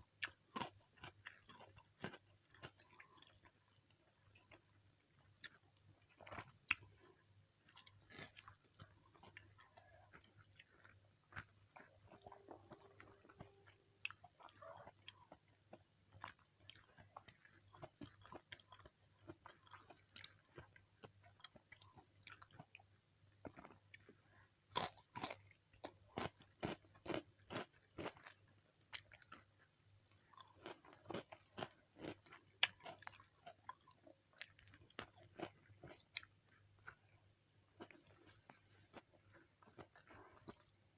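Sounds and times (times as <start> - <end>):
person chewing food: 0.2 - 40.8.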